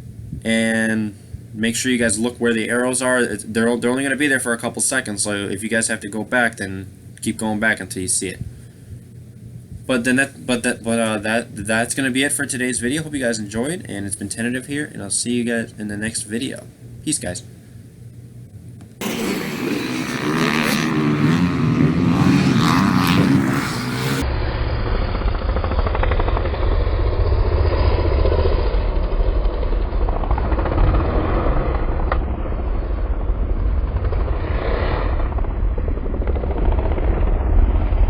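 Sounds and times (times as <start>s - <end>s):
motocross bike engine: 19.0s - 37.9s
heavy low rumble: 19.0s - 38.0s.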